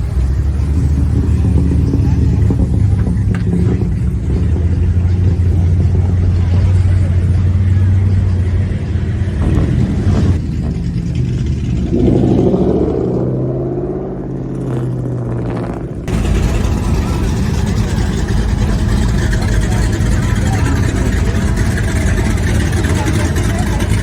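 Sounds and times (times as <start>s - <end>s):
car engine revving: 0.0s - 24.0s
car engines rumbling: 0.0s - 24.0s.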